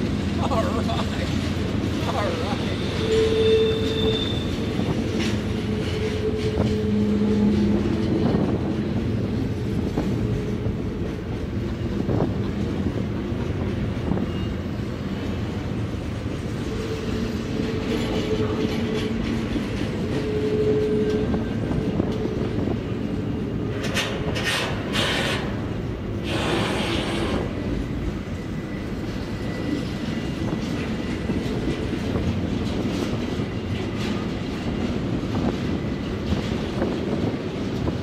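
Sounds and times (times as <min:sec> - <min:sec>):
steel wheels rumbling on rail: 0:00.0 - 0:38.0
faint wheel squealing: 0:02.3 - 0:04.9.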